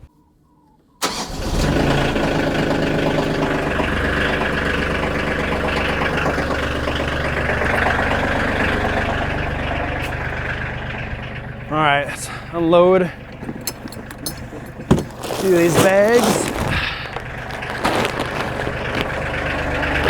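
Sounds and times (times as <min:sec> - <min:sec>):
tractor diesel engine idling: 0:01.0 - 0:20.0.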